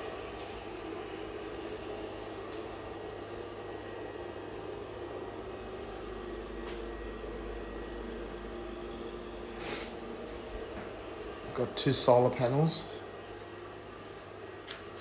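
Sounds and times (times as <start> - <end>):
fridge compressor hum: 0.0 - 15.0.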